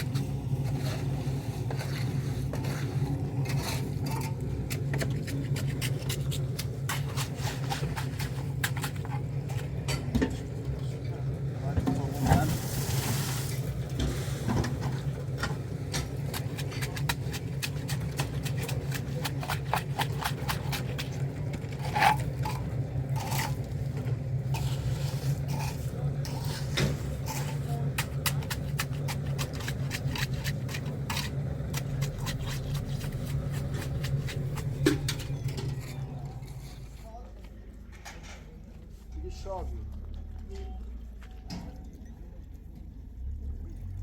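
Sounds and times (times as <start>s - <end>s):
low machine hum: 0.0s - 44.0s.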